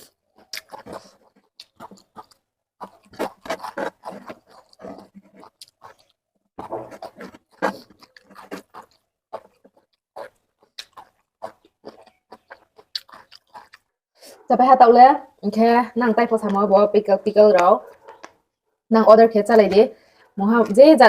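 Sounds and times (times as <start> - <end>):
person chewing food: 0.0 - 14.4, 17.8 - 18.6.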